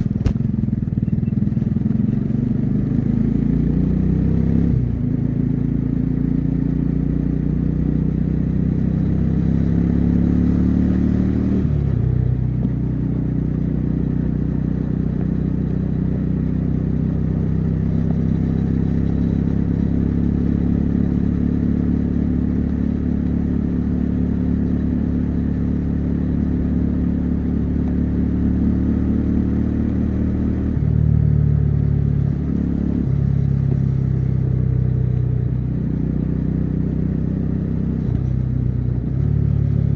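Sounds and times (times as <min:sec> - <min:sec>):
motorcycle engine under load: 0:00.0 - 0:03.5.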